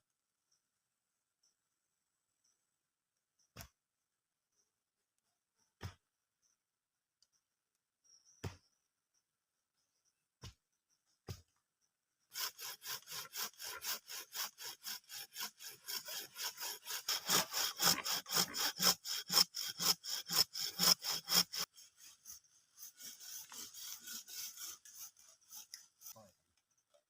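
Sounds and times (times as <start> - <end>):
hand saw cutting wood: 12.3 - 26.3.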